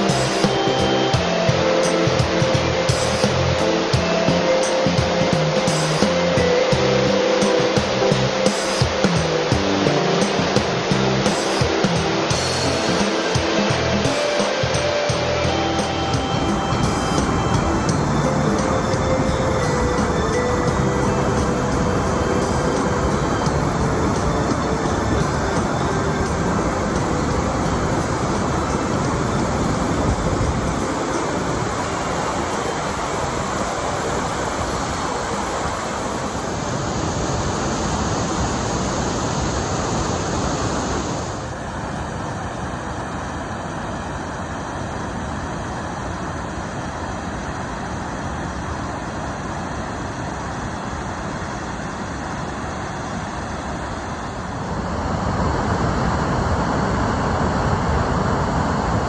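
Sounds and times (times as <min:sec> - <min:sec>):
water rushing out of dam: 0:20.3 - 0:59.0.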